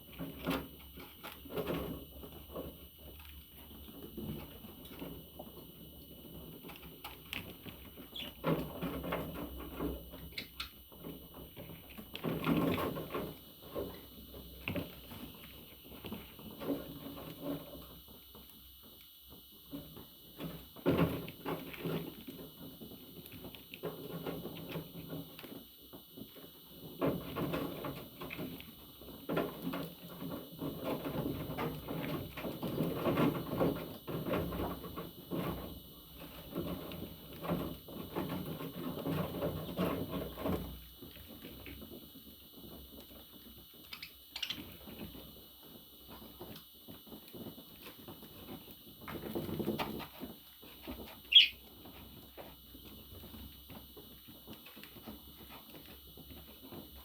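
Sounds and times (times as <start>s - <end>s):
budgerigar sharp chirps: 51.3s - 51.6s.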